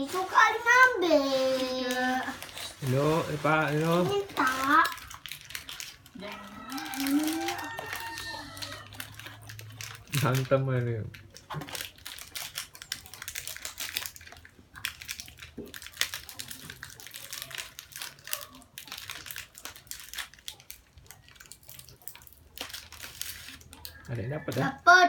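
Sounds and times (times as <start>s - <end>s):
plastic wrappers crinkling: 0.0s - 24.8s.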